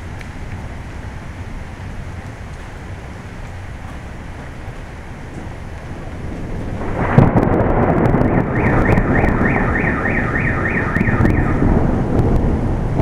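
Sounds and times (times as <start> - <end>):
wind: 0.0 - 13.0
rolling thunder: 4.2 - 13.0
thunderclap: 4.6 - 13.0
car alarm whooping: 7.9 - 11.8.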